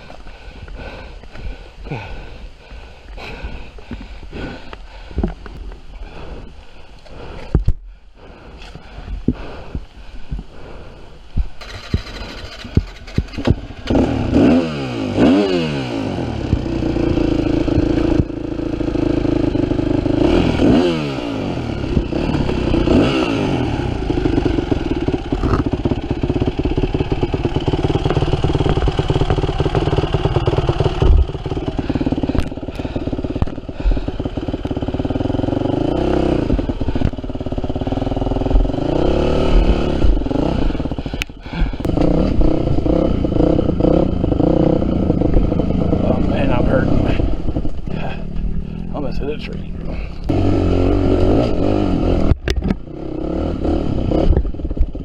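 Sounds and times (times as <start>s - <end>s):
bike rattling over rough ground: 11.5s - 14.1s, 24.0s - 50.3s
dirt bike engine revving: 11.6s - 55.0s.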